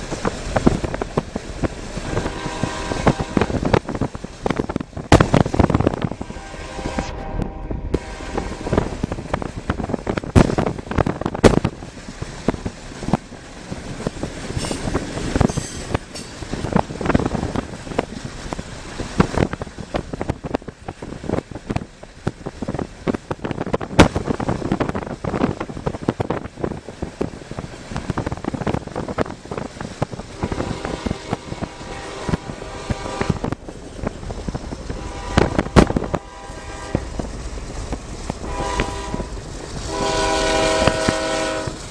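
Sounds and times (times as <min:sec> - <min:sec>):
freight train rumbling past: 0:00.0 - 0:41.9
locomotive air horn: 0:02.0 - 0:03.8, 0:06.0 - 0:09.0, 0:30.3 - 0:33.6, 0:34.8 - 0:37.2, 0:38.4 - 0:41.9
rough crackling and thumps: 0:03.1 - 0:06.2, 0:08.6 - 0:13.3.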